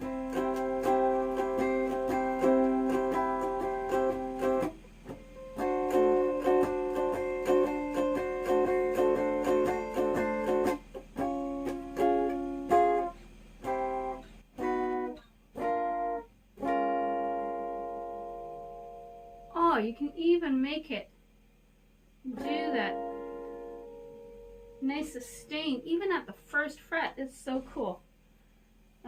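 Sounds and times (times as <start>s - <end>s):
electric ukulele strumming chords: 0.0s - 19.8s, 22.3s - 25.9s.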